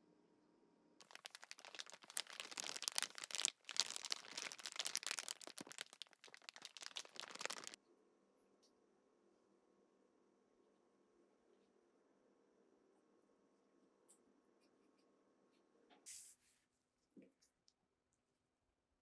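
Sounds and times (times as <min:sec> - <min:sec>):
rapid scratching and crackling: 0:01.0 - 0:07.8.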